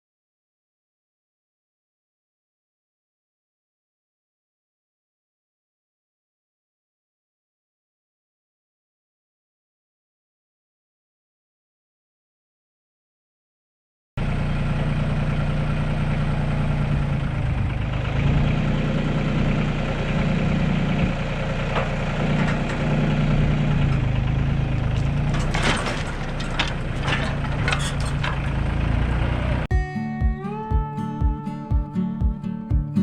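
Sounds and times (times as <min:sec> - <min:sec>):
engine idling: 0:14.2 - 0:29.7.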